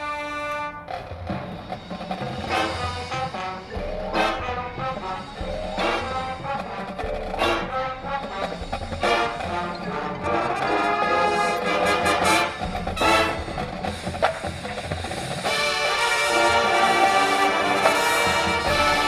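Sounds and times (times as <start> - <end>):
drumline percussion: 0.0 - 19.0
marching band playing: 0.0 - 19.0
brass sustaining chords: 2.4 - 14.1, 15.4 - 19.0.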